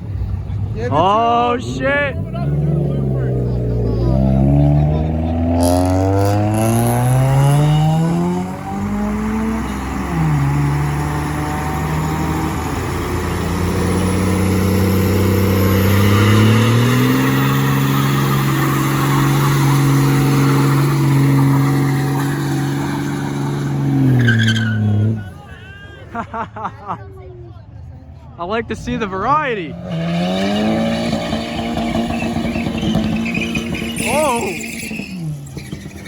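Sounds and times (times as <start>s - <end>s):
car engine revving: 0.0s - 25.4s, 28.7s - 36.0s
tyres squealing: 8.4s - 25.6s, 29.8s - 36.0s.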